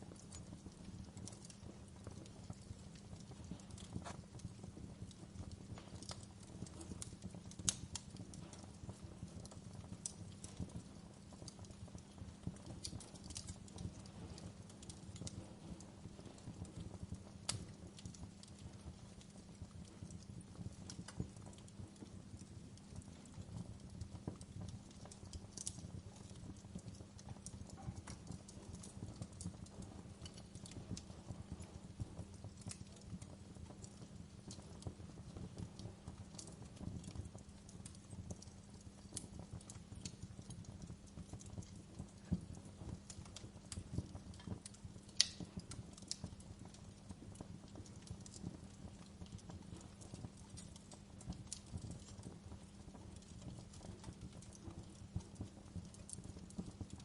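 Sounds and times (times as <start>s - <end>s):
campfire rumbling: 0.0s - 57.0s
wood crackling and popping: 0.0s - 57.0s.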